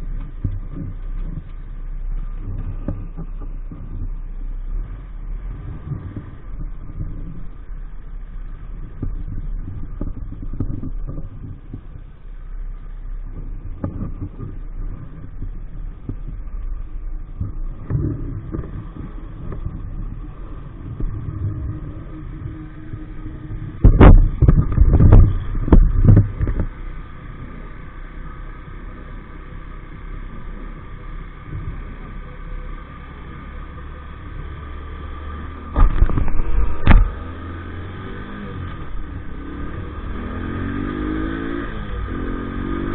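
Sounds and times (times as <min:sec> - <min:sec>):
moped engine running: 0:00.0 - 0:42.9
loud thumps and rumbling: 0:05.3 - 0:12.2, 0:13.2 - 0:28.0, 0:34.6 - 0:42.9.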